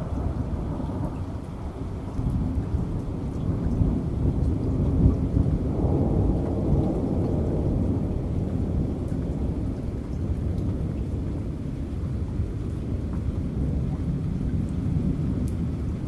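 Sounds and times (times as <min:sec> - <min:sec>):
heavy rain: 0:00.0 - 0:16.0
thunder rumbling: 0:00.0 - 0:16.0.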